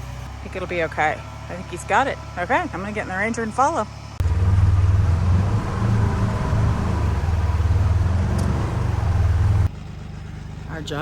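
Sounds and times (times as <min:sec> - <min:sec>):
engine low rumble: 0:00.0 - 0:11.0.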